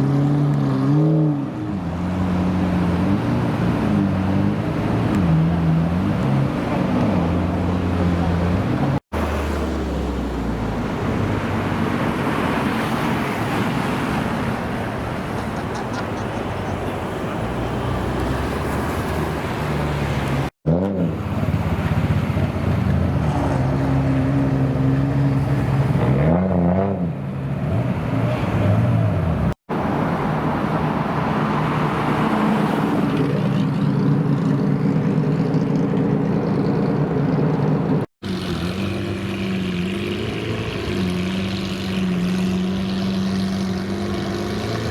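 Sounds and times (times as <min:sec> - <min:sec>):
engine revving: 0:31.0 - 0:44.9.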